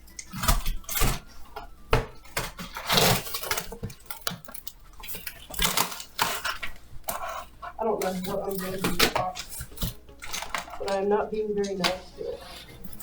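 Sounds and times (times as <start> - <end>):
cardboard box rustling and ripping: 2.4 - 4.0.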